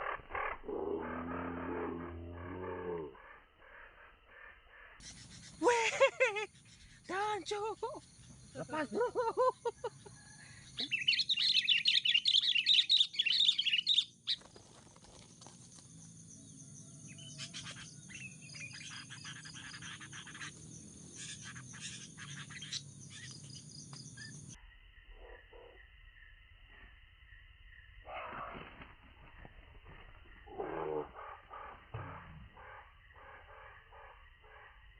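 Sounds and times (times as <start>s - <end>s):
birds chattering calls: 2.7s - 24.6s.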